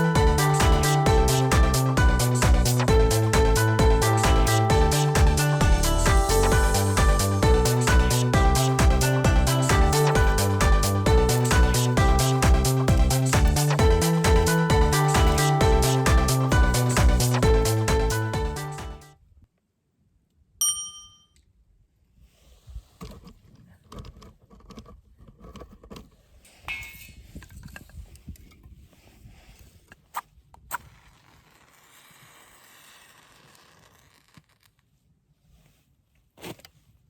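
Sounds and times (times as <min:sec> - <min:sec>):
background music: 0:00.0 - 0:19.1
ringing ding: 0:20.6 - 0:21.4
scraping and handling noises: 0:35.4 - 0:37.0.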